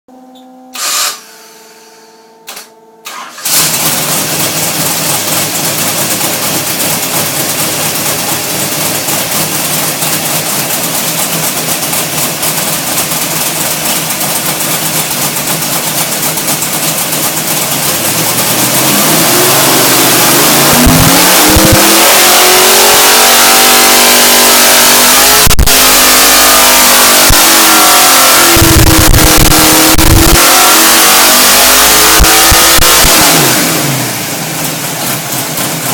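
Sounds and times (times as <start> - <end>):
engine revving under load: 0.7 - 9.5, 17.7 - 35.9.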